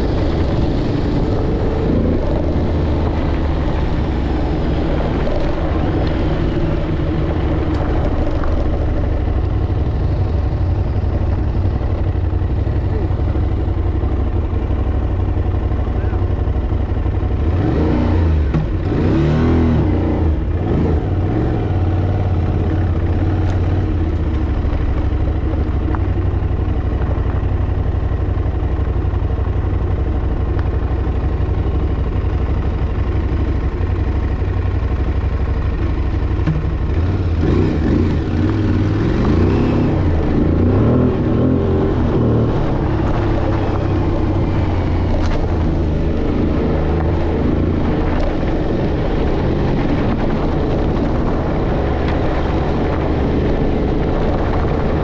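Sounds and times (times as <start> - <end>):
dirt bike engine revving: 36.4 - 55.0.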